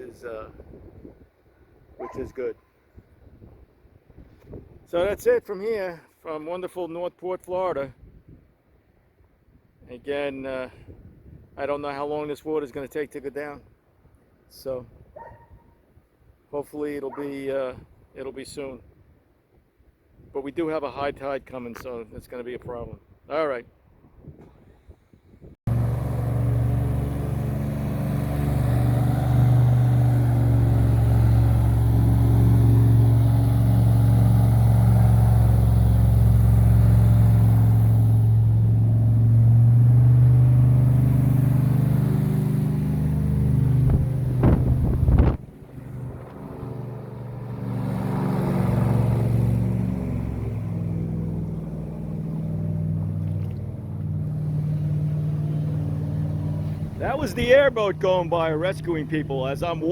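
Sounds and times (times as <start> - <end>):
airboat engine droning: 25.7 - 59.9.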